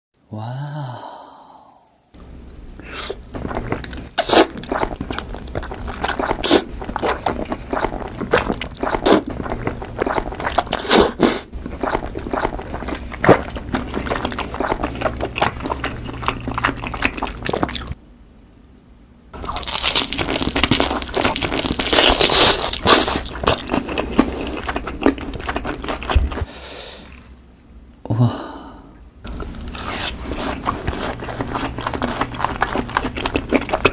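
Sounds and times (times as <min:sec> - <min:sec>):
wet chewing of noodles: 0:02.8 - 0:18.0, 0:19.4 - 0:26.5, 0:29.3 - 0:33.9
crunchy chewing: 0:03.2 - 0:18.0, 0:19.4 - 0:26.5, 0:29.3 - 0:33.9.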